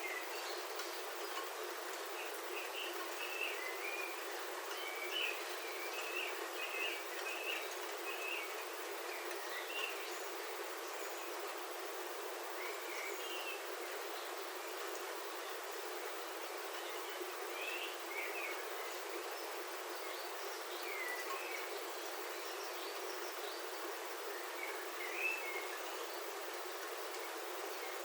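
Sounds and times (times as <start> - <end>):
rain on a roof: 0.0 - 12.9, 13.6 - 28.0
bird chirping: 2.1 - 11.4.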